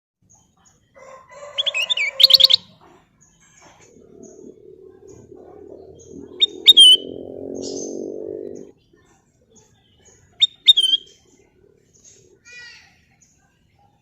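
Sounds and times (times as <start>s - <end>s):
low hum: 3.7s - 8.7s
bulbul whistling: 3.8s - 8.7s, 10.4s - 11.2s.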